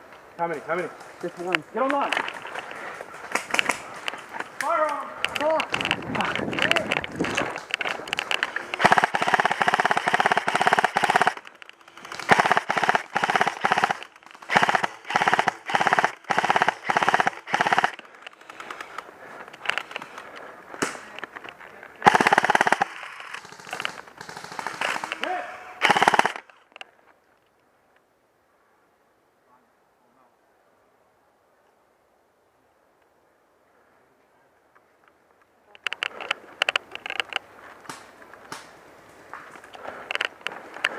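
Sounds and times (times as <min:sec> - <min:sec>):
airsoft guns firing bursts: 0:07.8 - 0:19.0, 0:22.0 - 0:26.5.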